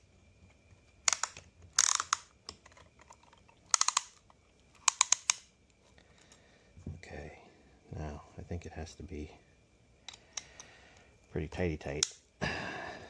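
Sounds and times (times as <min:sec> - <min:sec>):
ratchet clicking rapidly: 0:01.1 - 0:02.2, 0:03.7 - 0:04.1.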